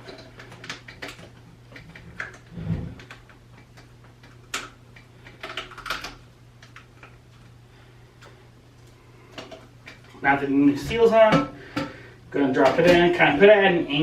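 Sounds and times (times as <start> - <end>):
plastic parts clicking: 0.0 - 7.2.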